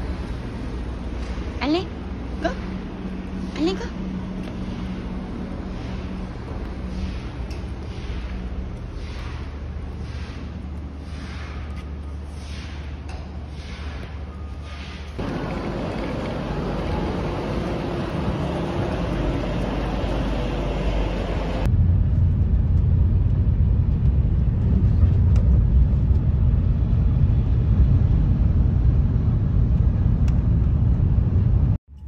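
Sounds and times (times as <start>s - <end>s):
train rumbling from inside carriage: 0.0s - 31.8s
station platform noise: 13.3s - 21.7s.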